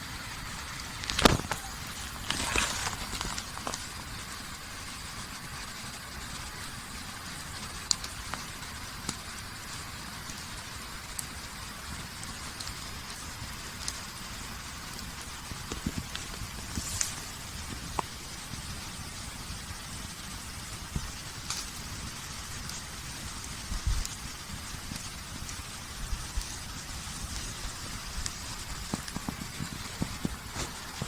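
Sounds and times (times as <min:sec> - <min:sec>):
campfire hissing: 0:00.0 - 0:31.0
fire pops and crackles: 0:00.0 - 0:31.0.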